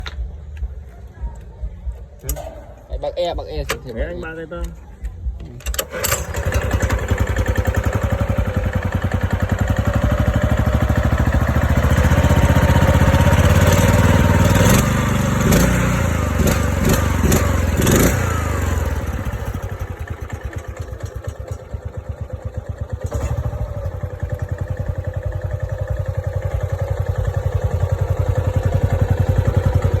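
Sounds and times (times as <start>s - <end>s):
single-cylinder engine revving and chugging: 5.7s - 30.0s.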